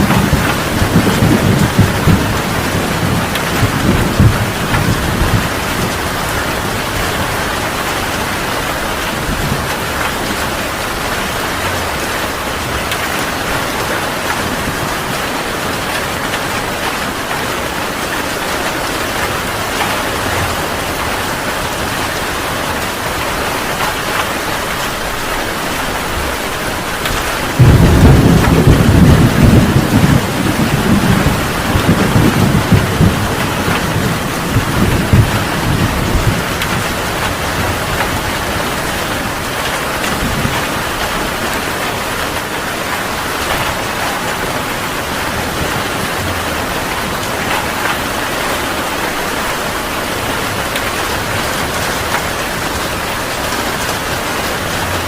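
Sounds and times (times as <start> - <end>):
heavy rain: 0.0 - 55.0
thunder rumbling: 0.0 - 55.0.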